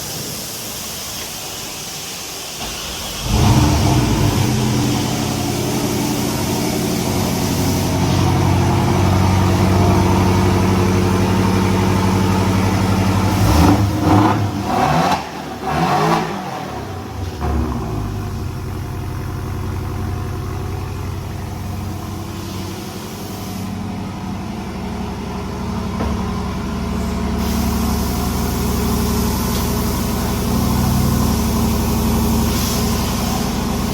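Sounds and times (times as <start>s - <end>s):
car engine starting and idling: 0.2s - 33.9s
engine revving: 3.2s - 19.7s.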